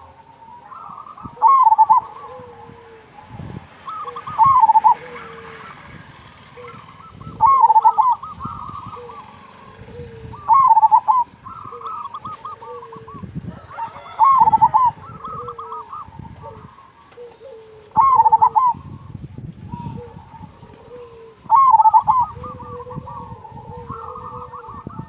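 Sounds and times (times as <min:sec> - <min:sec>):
dove wavering coo phrase: 0:00.0 - 0:25.0
soft dove cooing: 0:00.0 - 0:25.0.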